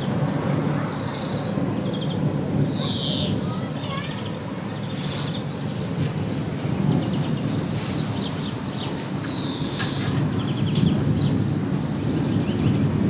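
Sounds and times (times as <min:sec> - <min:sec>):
small birds chirping: 0:00.0 - 0:06.2, 0:06.8 - 0:13.0
wind rumbling on microphone: 0:00.0 - 0:13.0.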